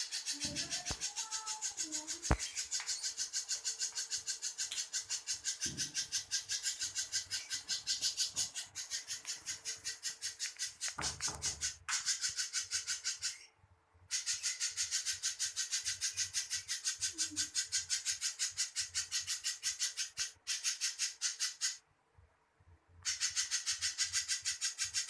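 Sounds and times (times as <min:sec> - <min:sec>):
bird singing raspy high notes: 0:00.0 - 0:10.9.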